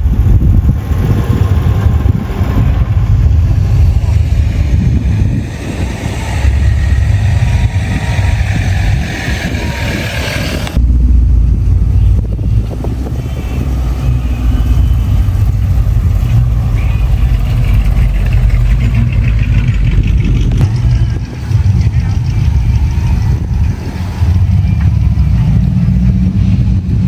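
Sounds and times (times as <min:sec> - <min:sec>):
car engines driving off: 0:00.0 - 0:27.0.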